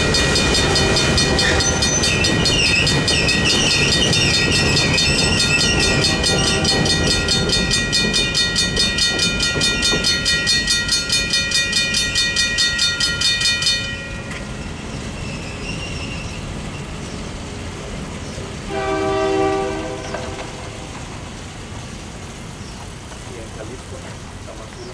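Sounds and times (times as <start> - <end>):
train horn blast: 0.0 - 2.2, 5.8 - 7.2, 18.6 - 21.3
crossing bells ringing rapidly: 0.0 - 15.7
freight train rumbling: 0.0 - 24.9.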